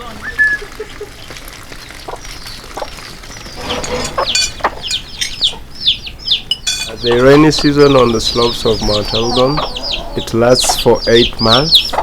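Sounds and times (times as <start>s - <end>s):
chickens chirping: 0.0s - 12.0s.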